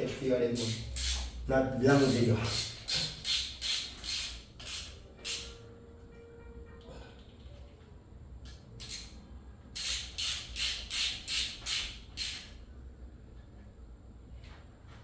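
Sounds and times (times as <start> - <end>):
ratchet wrench ratcheting: 0.6 - 5.6, 8.8 - 9.2, 9.8 - 12.6.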